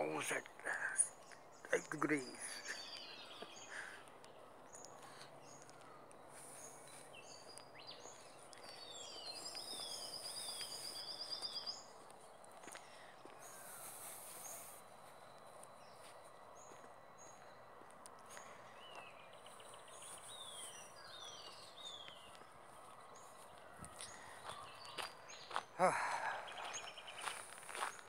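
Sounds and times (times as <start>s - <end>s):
faint birdsong: 0.0s - 28.0s.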